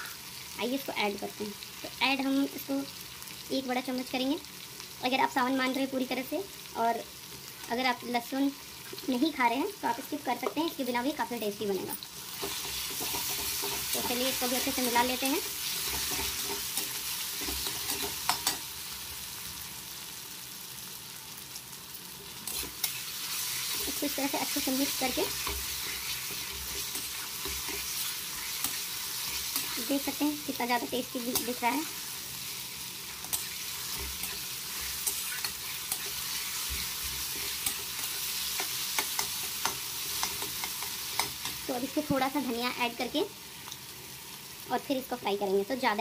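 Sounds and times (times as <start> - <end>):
food sizzling in oil: 0.0 - 46.0
metal spatula scraping pan: 12.3 - 14.9, 15.6 - 18.7, 24.6 - 30.0, 31.3 - 41.6
metal spatula clicking against pan: 37.6 - 41.6.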